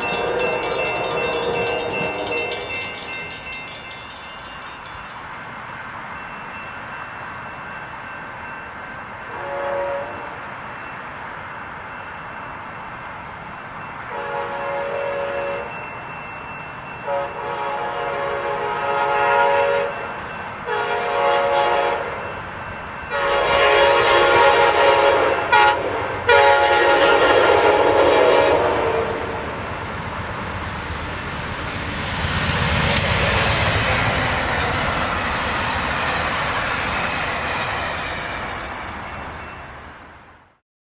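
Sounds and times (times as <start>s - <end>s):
train horn blasts: 0.0s - 3.1s, 9.2s - 10.6s, 14.1s - 15.8s, 17.0s - 22.3s, 23.1s - 29.6s
train wheels rumbling on rails: 0.0s - 11.1s, 11.7s - 40.4s.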